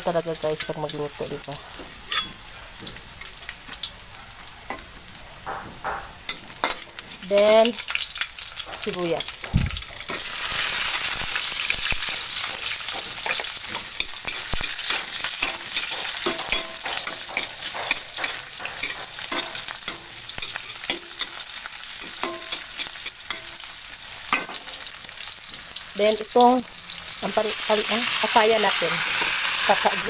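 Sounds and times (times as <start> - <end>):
sizzling in hot oil: 0.0 - 30.0
utensil scraping pan: 2.0 - 2.4.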